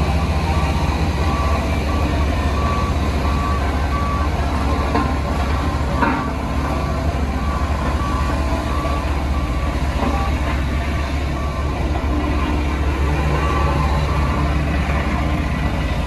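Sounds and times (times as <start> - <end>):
diesel machinery rumbling: 0.0 - 16.0
reversing alarm beeps: 0.0 - 16.0.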